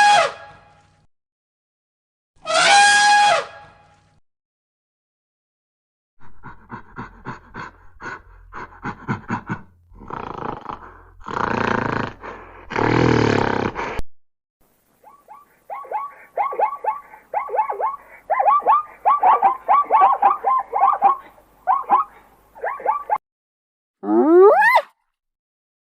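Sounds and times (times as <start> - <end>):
animal grunts: 6.2 - 14.0
animal rough roars: 9.9 - 13.9
animal chirping calls: 15.0 - 23.2.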